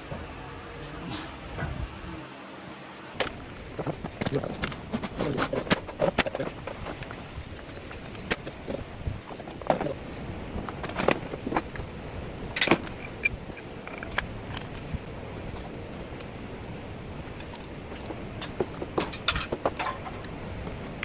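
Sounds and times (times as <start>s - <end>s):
steady low hum: 0.0s - 21.0s
metallic clinks of tools and parts: 12.6s - 15.0s, 17.5s - 20.3s.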